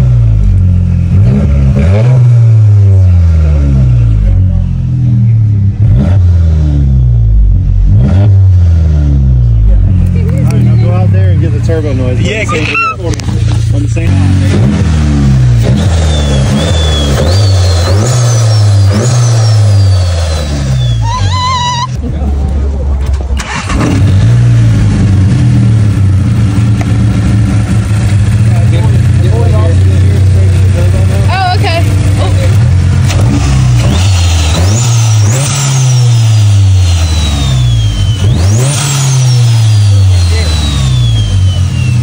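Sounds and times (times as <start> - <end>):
car engine revving: 0.0 - 42.0
high turbo whine: 0.0 - 42.0
turbo whistle: 15.7 - 22.0, 34.4 - 42.0.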